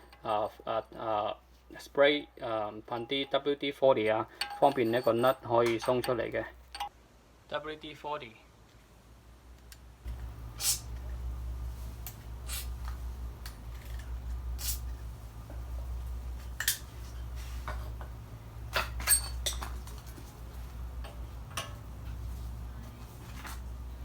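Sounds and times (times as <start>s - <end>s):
metal hand tools clinking: 4.3s - 6.9s, 18.7s - 20.2s
steady low hum: 8.4s - 24.0s
brief hissy strokes: 10.6s - 10.9s.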